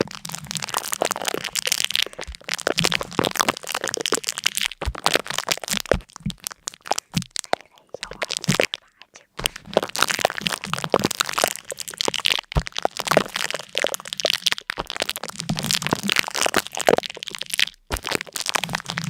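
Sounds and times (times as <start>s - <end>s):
rapid crackling and crunching: 0.0s - 19.0s.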